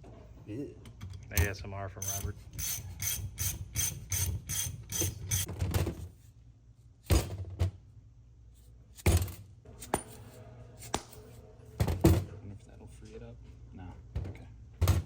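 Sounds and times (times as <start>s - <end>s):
ratchet wrench clicking: 2.0s - 5.5s.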